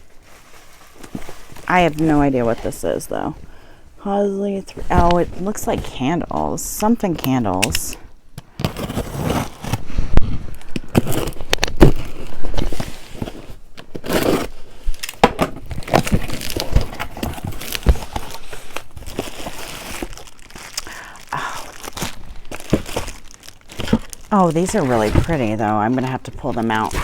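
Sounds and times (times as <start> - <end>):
soft rustling: 0.0 - 7.2
packaging tearing and crinkling: 8.5 - 27.0
box knocks and thumps: 15.2 - 18.3.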